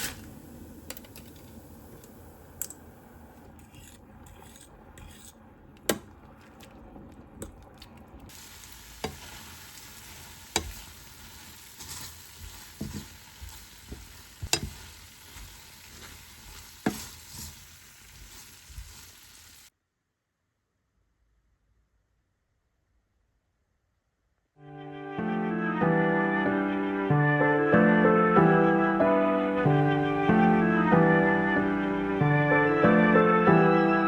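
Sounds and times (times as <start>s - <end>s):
food sizzling in a pan: 0.0s - 2.3s, 8.3s - 19.7s
utensil knocking against pan: 13.9s - 14.8s.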